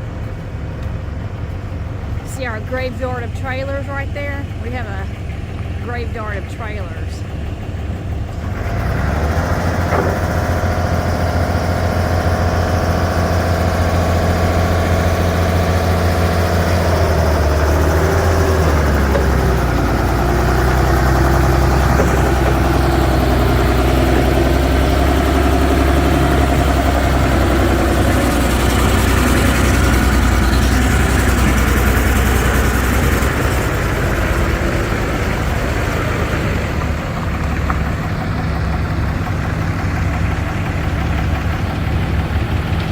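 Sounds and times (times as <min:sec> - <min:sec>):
engine running: 0:00.0 - 0:42.9.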